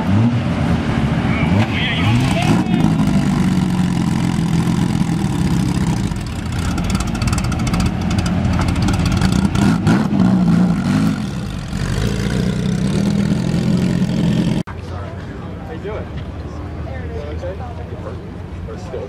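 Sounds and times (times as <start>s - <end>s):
sports car engine at low revs: 0.0s - 14.7s.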